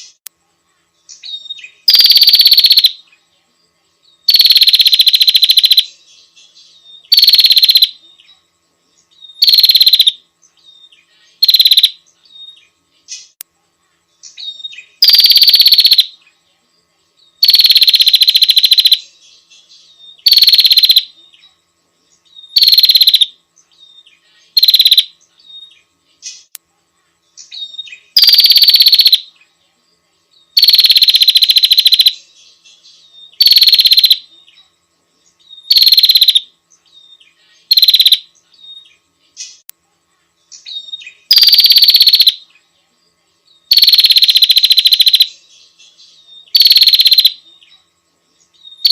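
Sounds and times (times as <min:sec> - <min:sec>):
buzzy rasping bird calls: 0:01.3 - 0:03.0, 0:04.3 - 0:05.9, 0:07.1 - 0:08.0, 0:09.4 - 0:10.2, 0:11.4 - 0:12.0, 0:14.5 - 0:16.1, 0:17.4 - 0:19.0, 0:20.2 - 0:21.1, 0:22.5 - 0:23.3, 0:24.5 - 0:25.1, 0:27.6 - 0:29.2, 0:30.6 - 0:32.2, 0:33.4 - 0:34.3, 0:35.6 - 0:36.5, 0:37.6 - 0:38.3, 0:40.8 - 0:42.4, 0:43.7 - 0:45.4, 0:46.5 - 0:47.4.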